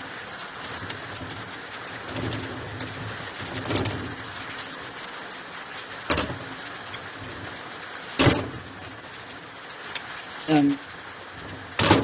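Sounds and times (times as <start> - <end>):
steady hiss: 0.0 - 12.0
sharp metallic knocks: 8.2 - 8.7.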